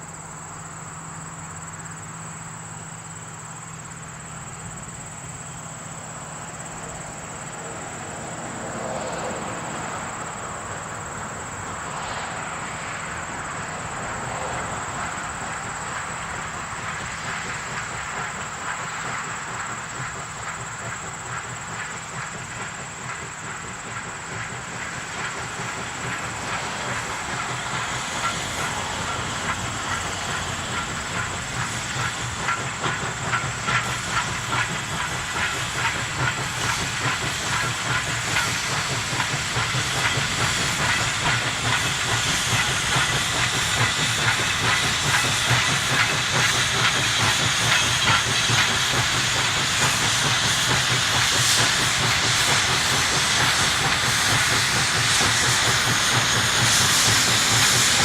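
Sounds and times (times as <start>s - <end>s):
train running with rattles: 0.0s - 58.0s.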